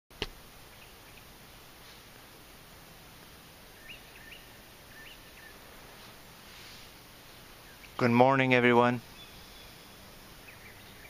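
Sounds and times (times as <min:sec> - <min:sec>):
steady outdoor hiss: 0:00.1 - 0:11.0
small birds chirping: 0:00.6 - 0:11.0.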